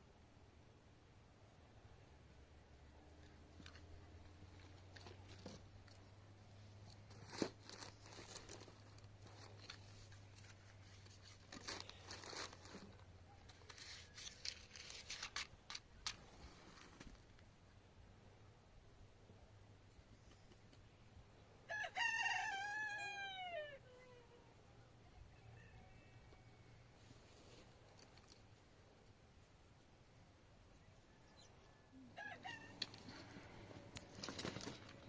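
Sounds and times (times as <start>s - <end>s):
rustling and crinkling: 3.1s - 17.5s, 27.0s - 29.5s, 32.7s - 35.0s.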